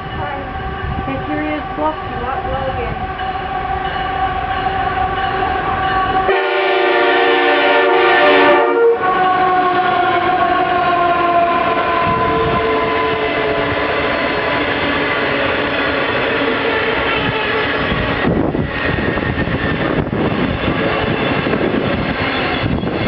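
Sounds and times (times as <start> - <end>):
locomotive horn blast: 0.0 - 14.2.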